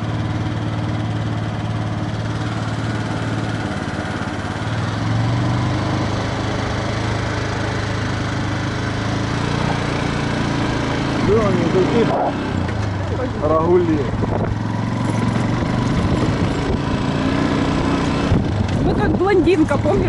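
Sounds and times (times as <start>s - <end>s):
motorcycle engine idling: 0.0s - 20.0s
wind noise on microphone: 14.1s - 17.1s, 18.1s - 20.0s.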